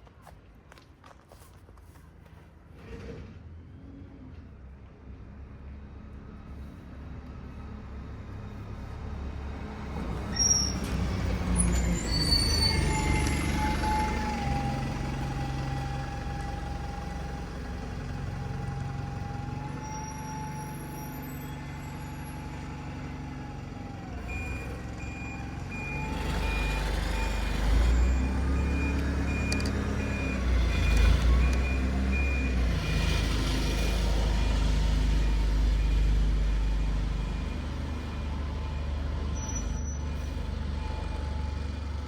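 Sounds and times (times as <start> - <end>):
diesel engine whining: 6.3 - 42.0
reversing alarm beeping: 24.3 - 41.8.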